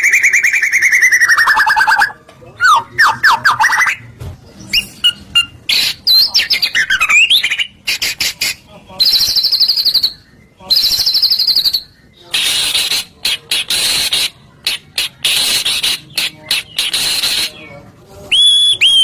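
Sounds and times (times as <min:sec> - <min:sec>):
buzzy rattling bird phrases: 0:00.0 - 0:18.2
songbird whistles and trills: 0:00.0 - 0:19.0.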